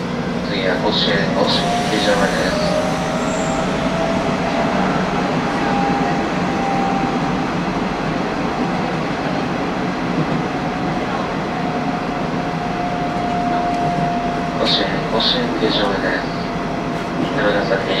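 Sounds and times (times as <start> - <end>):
train running rumble: 0.0 - 18.0
train motor whine: 1.1 - 8.4.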